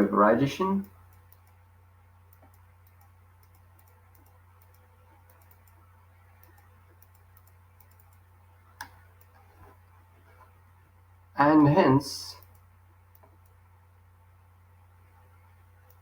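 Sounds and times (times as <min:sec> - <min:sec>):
low room hum: 0:00.0 - 0:16.0
faint ticks: 0:02.3 - 0:05.8, 0:06.4 - 0:09.5.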